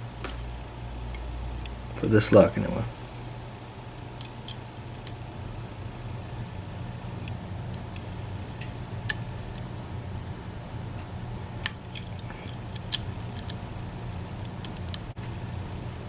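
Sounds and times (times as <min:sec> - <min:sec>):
steady low hum: 0:00.0 - 0:16.0
lock picks clicking: 0:03.9 - 0:05.2, 0:11.6 - 0:15.1.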